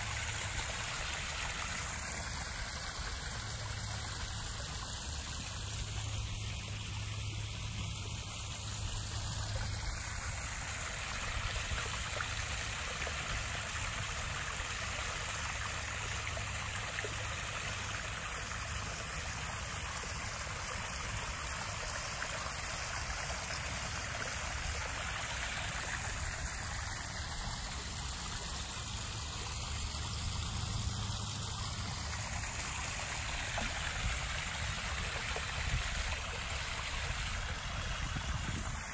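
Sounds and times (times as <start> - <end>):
water trickling into pond: 0.0 - 38.9.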